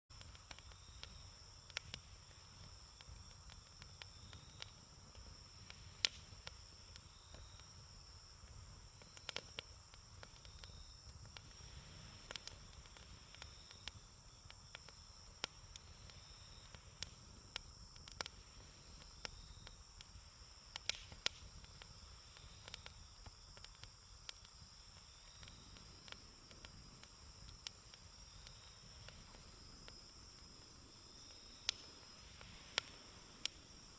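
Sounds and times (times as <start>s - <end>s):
campfire crackling and popping: 0.1s - 33.9s
crickets chirring: 0.1s - 33.9s.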